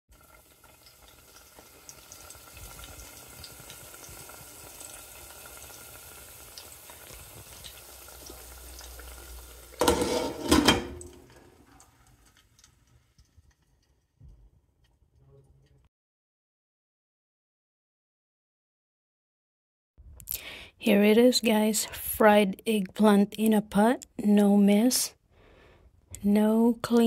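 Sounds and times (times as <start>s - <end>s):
food sizzling in oil: 0.1s - 13.6s
metal pot lid clattering: 9.8s - 11.4s.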